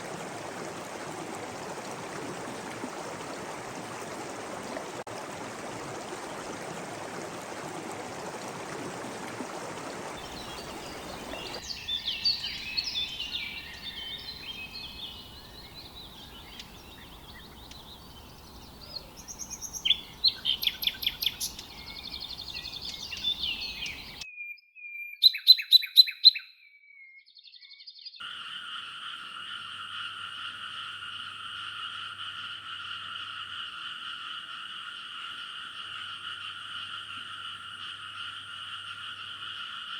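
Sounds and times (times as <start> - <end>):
running water: 0.0 - 24.2
frogs chorus: 10.2 - 24.2, 28.2 - 39.9
birds chirping and twittering: 10.2 - 28.2.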